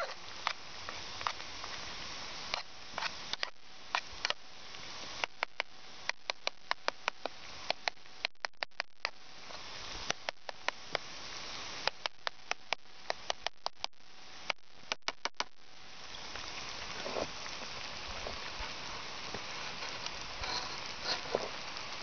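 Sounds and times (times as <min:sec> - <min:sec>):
soft hiss: 0:00.0 - 0:22.0
sharp clicks: 0:05.2 - 0:09.2, 0:10.0 - 0:11.1, 0:11.8 - 0:15.6.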